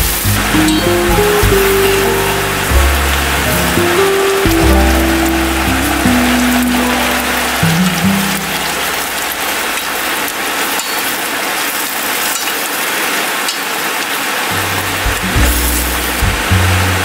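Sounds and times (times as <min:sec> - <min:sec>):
background music: 0:00.0 - 0:09.3, 0:15.1 - 0:17.0
shrimp sizzling in a wok: 0:00.0 - 0:10.1, 0:14.6 - 0:17.0.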